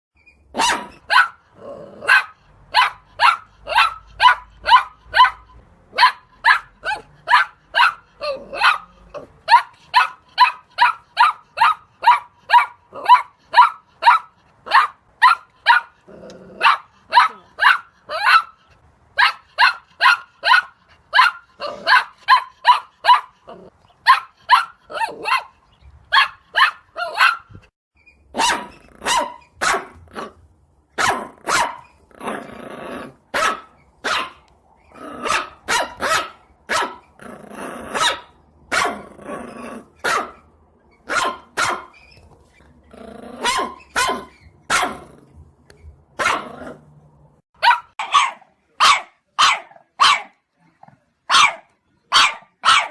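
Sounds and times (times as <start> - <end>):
dog barking: 0.5 - 16.0, 16.6 - 18.6, 19.2 - 27.6, 28.3 - 30.4, 31.0 - 31.9, 33.3 - 34.4, 35.2 - 37.0, 37.9 - 39.0, 40.0 - 42.0, 43.4 - 45.0, 46.2 - 46.8, 47.6 - 50.4, 51.3 - 52.9
dog growling: 1.5 - 2.2, 8.2 - 9.4, 15.9 - 17.6, 23.4 - 23.8, 32.1 - 33.3, 37.2 - 38.0, 38.9 - 40.0, 42.8 - 43.5.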